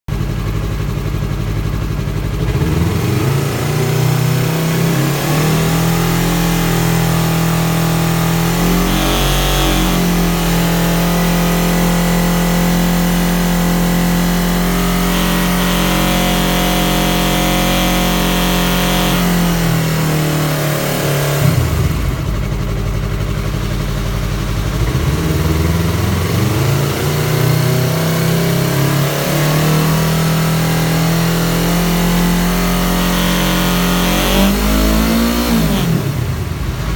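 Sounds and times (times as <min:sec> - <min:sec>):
motorcycle engine revving: 0:00.1 - 0:36.9
buzzing noise: 0:08.3 - 0:22.3.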